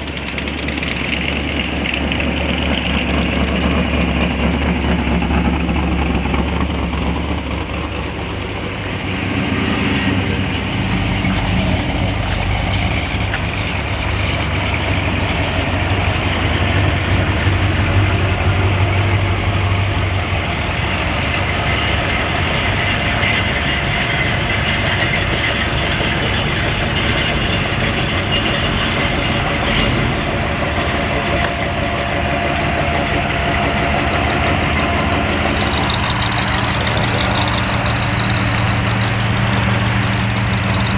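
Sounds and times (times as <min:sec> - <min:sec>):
car engines idling: 0:00.0 - 0:40.9
deep low engine note: 0:01.6 - 0:40.9.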